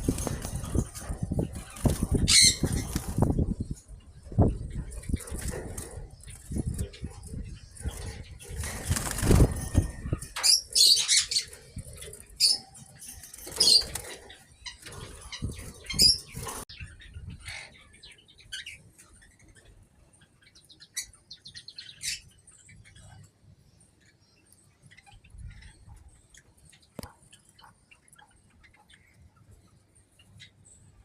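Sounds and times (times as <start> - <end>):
birds flapping wings: 0.0 - 3.6, 4.9 - 10.6, 13.2 - 16.7.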